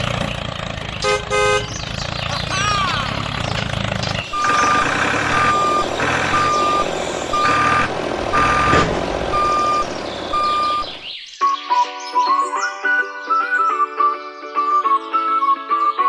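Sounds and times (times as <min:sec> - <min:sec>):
vehicle reversing alarm beeping: 0:04.1 - 0:11.1.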